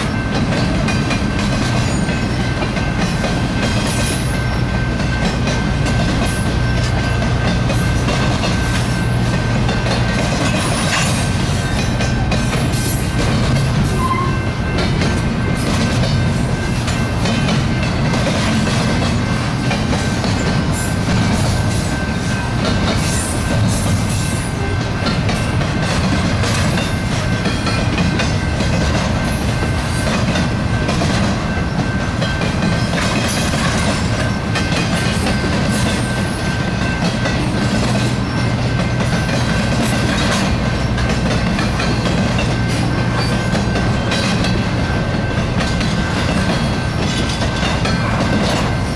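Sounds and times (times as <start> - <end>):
train wheels clacking over rail joints: 0.0 - 48.9.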